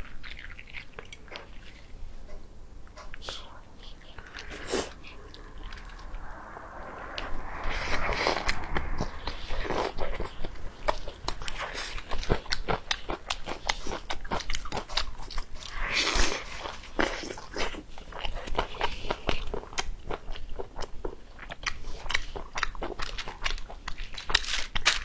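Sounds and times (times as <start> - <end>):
wet chewing and lip-smacking: 0.0 - 2.4, 9.0 - 25.0
hissy mouth sound: 3.2 - 12.6, 15.5 - 17.8.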